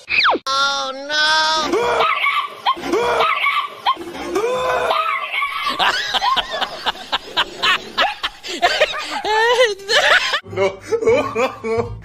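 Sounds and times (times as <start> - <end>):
laughter: 4.9 - 12.0.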